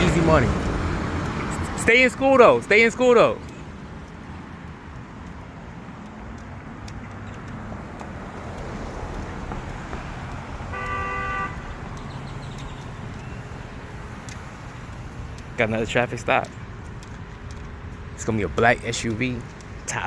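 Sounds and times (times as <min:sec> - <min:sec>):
road traffic passing: 0:00.0 - 0:20.0
car horn honk: 0:10.6 - 0:11.8.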